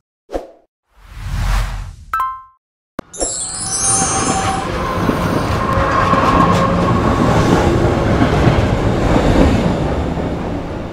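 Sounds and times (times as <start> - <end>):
train wheels rushing on rails: 4.1 - 10.9.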